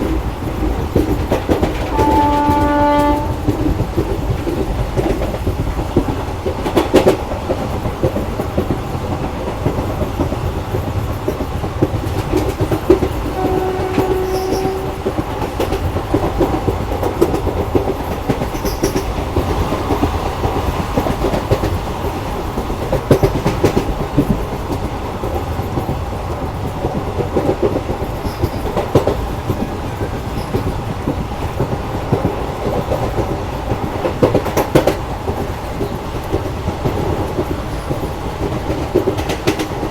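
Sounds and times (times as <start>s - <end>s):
train wheels clattering: 0.0s - 39.9s
train horn: 1.9s - 3.6s, 13.3s - 15.2s.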